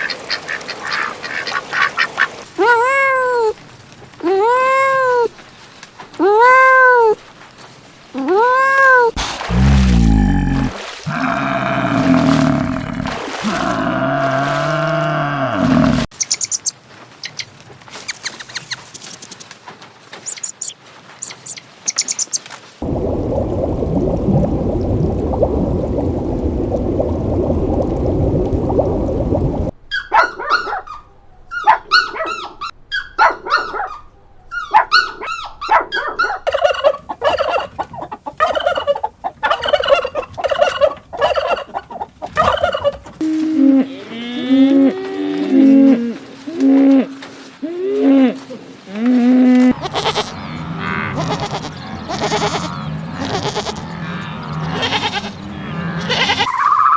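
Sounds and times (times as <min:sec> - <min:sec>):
loud rough animal noise: 0:09.2 - 0:16.1, 0:49.7 - 0:56.5
low drawn-out animal calls: 0:09.5 - 0:16.1, 0:43.2 - 0:56.9
animal chirps and clicks: 0:16.2 - 0:17.5, 0:20.2 - 0:22.5.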